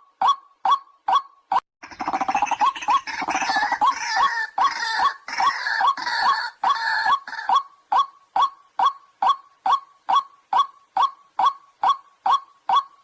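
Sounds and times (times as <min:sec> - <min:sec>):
waterhen clipped call notes: 0:00.0 - 0:13.0
waterhen churring croaks and grunts: 0:00.2 - 0:13.0.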